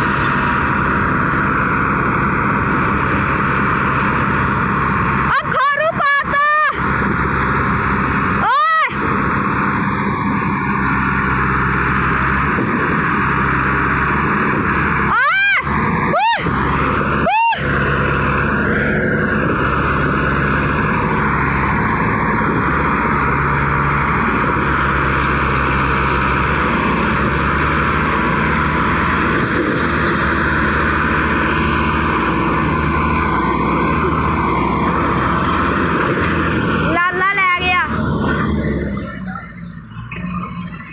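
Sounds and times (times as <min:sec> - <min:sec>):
tractor diesel engines running: 0:00.0 - 0:40.9.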